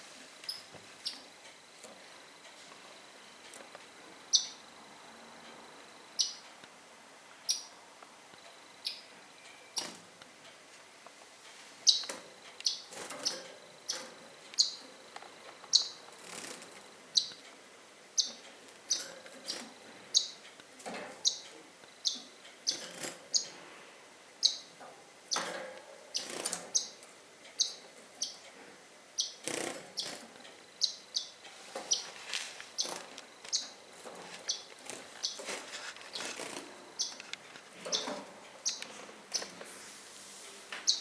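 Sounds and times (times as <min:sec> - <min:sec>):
bird chirping: 0:00.4 - 0:01.3, 0:04.3 - 0:04.7, 0:06.2 - 0:06.5, 0:07.5 - 0:07.8, 0:08.8 - 0:09.9, 0:11.8 - 0:14.9, 0:15.7 - 0:16.1, 0:17.1 - 0:17.5, 0:18.2 - 0:20.5, 0:21.2 - 0:23.6, 0:24.4 - 0:25.5, 0:26.1 - 0:27.0, 0:27.6 - 0:28.5, 0:29.2 - 0:30.2, 0:30.8 - 0:32.2, 0:32.8 - 0:33.9, 0:34.5 - 0:35.5, 0:37.0 - 0:39.6.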